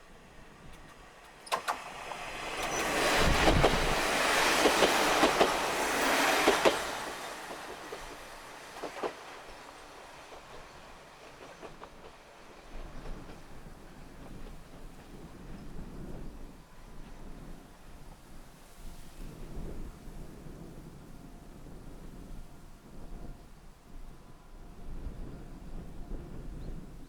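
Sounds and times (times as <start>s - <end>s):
wheels clicking over rail joints: 0.0s - 15.2s
diesel train passing: 0.0s - 27.0s.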